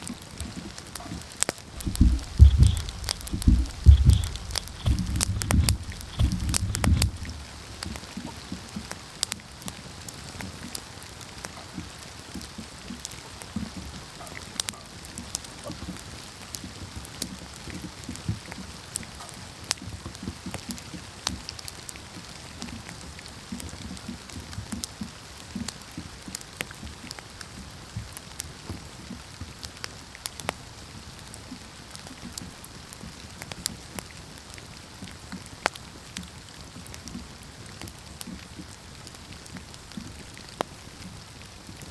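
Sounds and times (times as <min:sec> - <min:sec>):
campfire crackling and popping: 0:01.4 - 0:08.0, 0:35.6 - 0:41.9.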